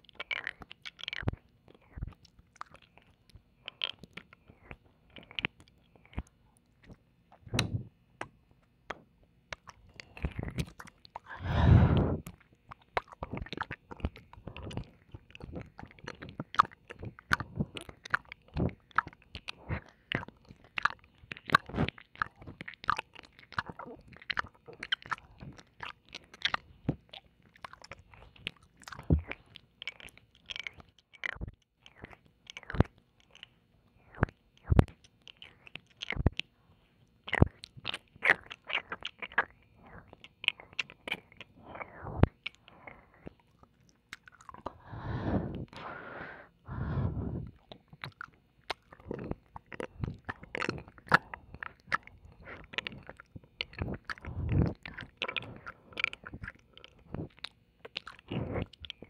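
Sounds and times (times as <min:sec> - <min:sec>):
wet mouth licking and kissing: 0:09.5 - 0:36.5, 0:37.2 - 0:44.8, 0:47.4 - 0:59.0.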